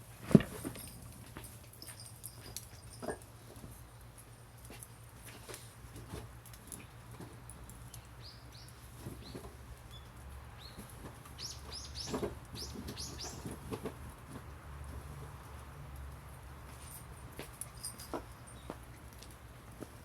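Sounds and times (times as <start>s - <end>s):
small bird chirping: 11.4s - 13.4s.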